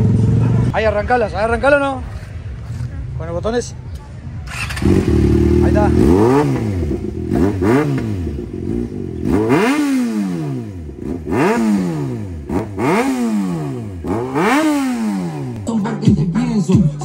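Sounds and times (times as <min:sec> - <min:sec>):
motorcycle engine revving: 0:04.4 - 0:15.7.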